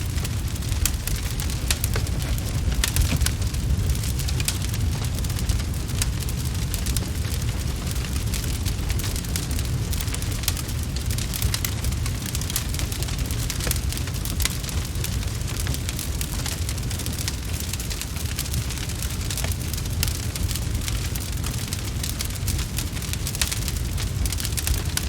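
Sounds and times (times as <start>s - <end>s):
low rumble: 0.0s - 12.0s
wood fire crackling: 0.0s - 25.0s.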